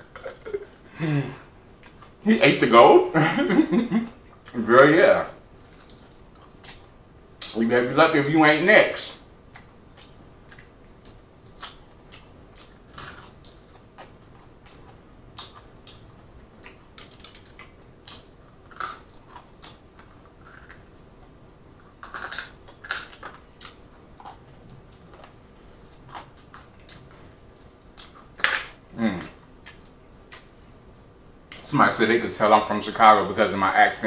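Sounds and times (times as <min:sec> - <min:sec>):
chewing crunchy fried chicken: 0:09.5 - 0:30.5.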